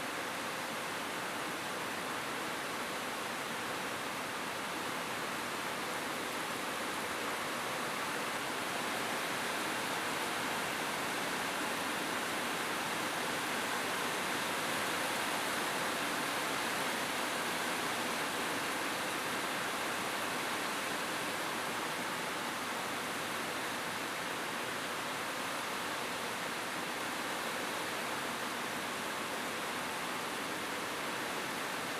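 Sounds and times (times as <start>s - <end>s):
rain falling on a roof: 0.0s - 31.9s.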